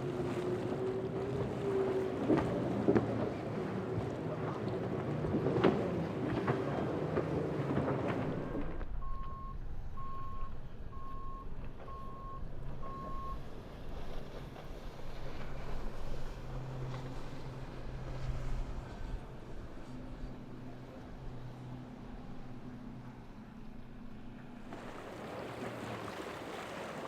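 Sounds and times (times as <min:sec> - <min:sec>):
motorboat engine running: 0:00.0 - 0:27.0
wind: 0:00.0 - 0:27.0
short electronic beeps: 0:09.0 - 0:13.4.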